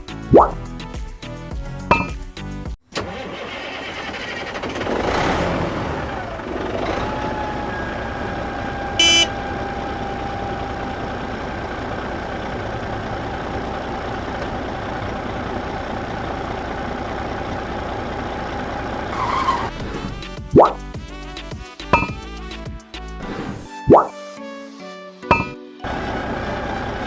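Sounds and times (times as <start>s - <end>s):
music: 0.0s - 2.8s, 19.7s - 27.0s
loud horn-like beep: 9.0s - 9.4s.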